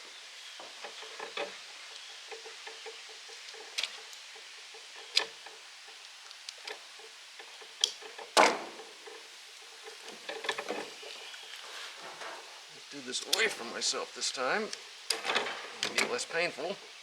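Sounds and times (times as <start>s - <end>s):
hand tools clicking on metal: 0.7s - 8.4s, 13.1s - 13.7s, 14.6s - 16.4s
short rustle: 8.9s - 16.5s.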